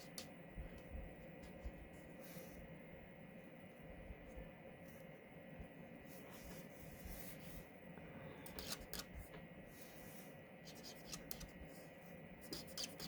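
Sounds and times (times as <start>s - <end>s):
marker scratching on card: 8.6s - 9.2s, 10.7s - 11.6s, 12.4s - 13.0s.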